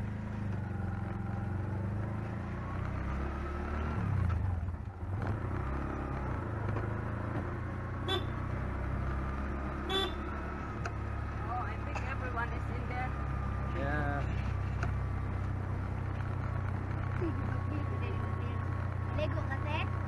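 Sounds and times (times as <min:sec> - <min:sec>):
car engine and road rumble: 0:00.0 - 0:20.0
car horn toots: 0:08.0 - 0:08.4, 0:09.8 - 0:10.2.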